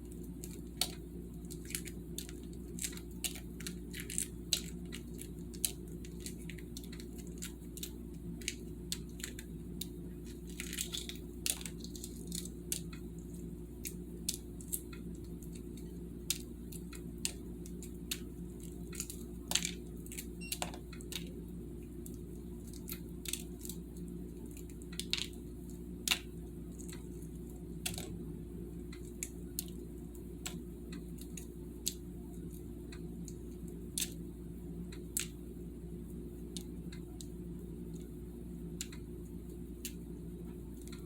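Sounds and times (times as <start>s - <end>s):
eggshells cracking and crackling: 0.0s - 28.2s, 28.9s - 34.2s, 34.9s - 35.4s
steady low hum: 0.0s - 41.0s.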